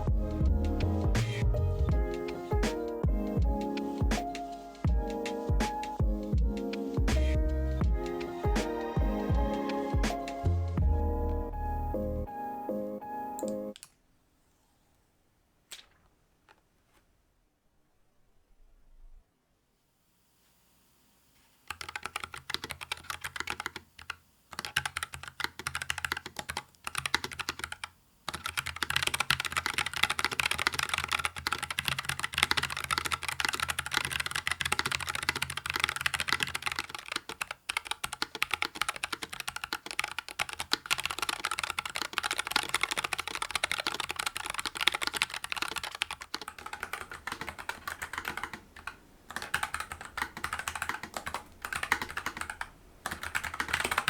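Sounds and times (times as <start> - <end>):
mechanical keyboard typing: 21.7 - 54.0.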